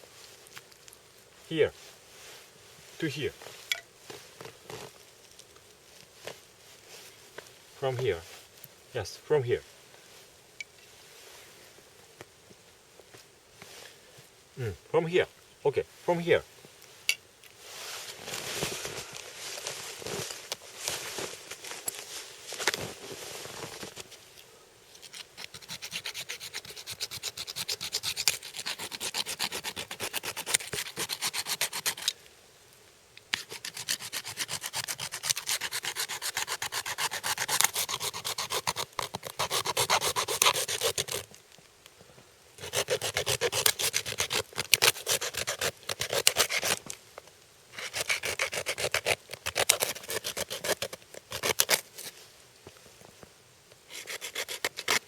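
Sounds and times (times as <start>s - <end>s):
saw rasping through bone: 25.1s - 32.1s, 33.3s - 41.3s, 42.6s - 46.8s, 47.8s - 51.8s, 53.9s - 55.0s.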